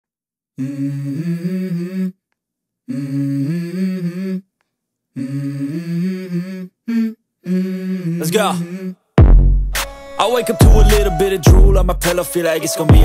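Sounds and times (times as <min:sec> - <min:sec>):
person humming a melody: 0:00.6 - 0:02.2, 0:05.2 - 0:09.0, 0:10.4 - 0:13.0.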